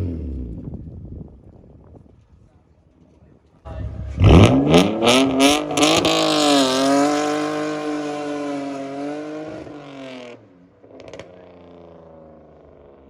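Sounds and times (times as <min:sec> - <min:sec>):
car engine revving high: 0:03.7 - 0:10.4.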